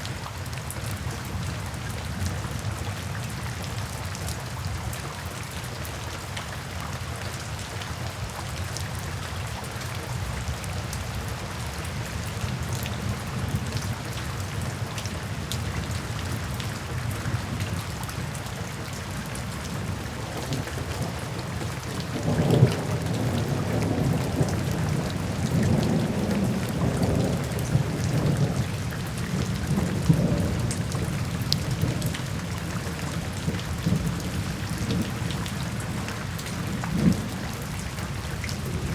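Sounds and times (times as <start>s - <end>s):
steady rain: 0.0s - 38.9s
thunder rumbling: 19.4s - 38.9s.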